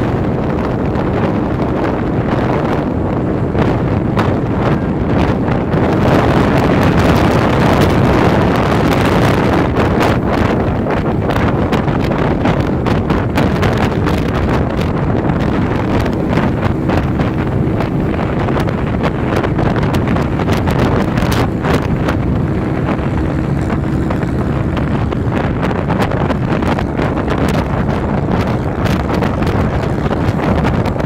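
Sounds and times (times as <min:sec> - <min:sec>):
vehicle engine running: 0:00.0 - 0:31.0
wind buffeting microphone: 0:00.0 - 0:31.0.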